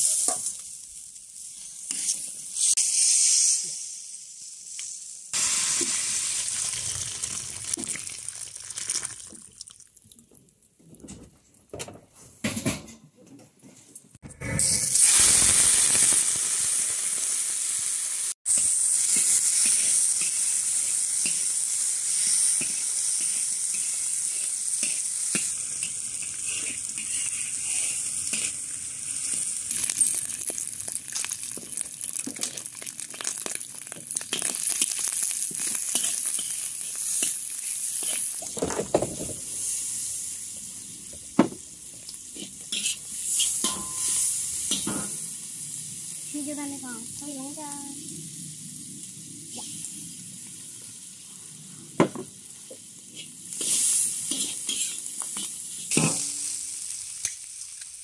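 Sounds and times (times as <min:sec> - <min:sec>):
food sizzling in hot oil: 0:00.0 - 0:10.1, 0:14.5 - 0:58.0
metal spatula scraping wok: 0:18.5 - 0:20.6, 0:22.3 - 0:30.1, 0:35.8 - 0:38.4, 0:42.4 - 0:45.1, 0:53.1 - 0:56.6
sharp metal clank: 0:43.6 - 0:45.2.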